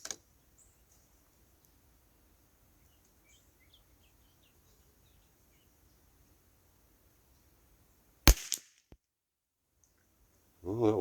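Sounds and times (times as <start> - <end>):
faint bird chirps: 0.2 - 7.9.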